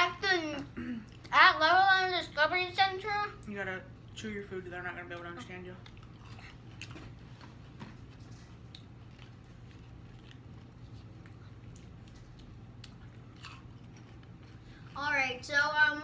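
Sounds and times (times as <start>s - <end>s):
steady low hum: 0.0s - 16.0s
people chewing food: 0.6s - 1.4s, 5.0s - 15.5s.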